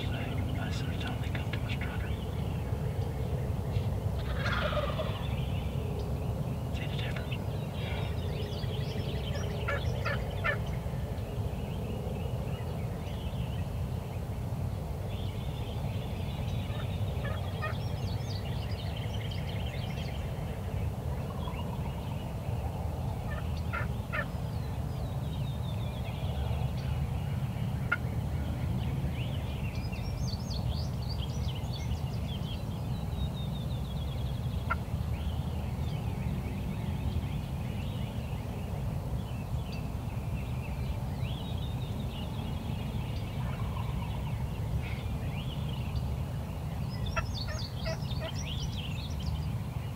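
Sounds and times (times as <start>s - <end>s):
steady low rumble: 0.0s - 49.9s
turkey gobbling: 4.2s - 5.2s, 47.4s - 48.4s.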